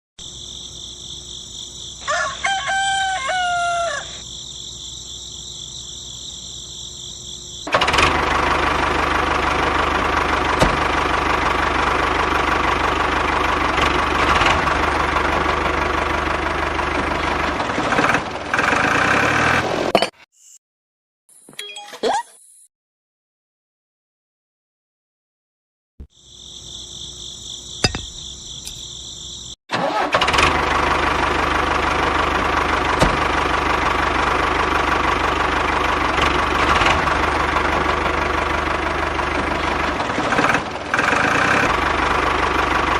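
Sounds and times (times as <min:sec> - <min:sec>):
rooster crowing: 0:02.0 - 0:04.3
small diesel engine running: 0:07.6 - 0:19.9, 0:29.7 - 0:42.9.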